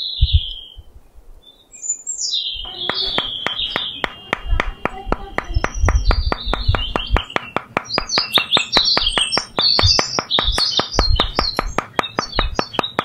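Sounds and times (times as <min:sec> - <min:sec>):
birds chirping: 0:00.0 - 0:13.0
soft low thumps: 0:02.8 - 0:13.0
fast even ticking: 0:02.9 - 0:13.0.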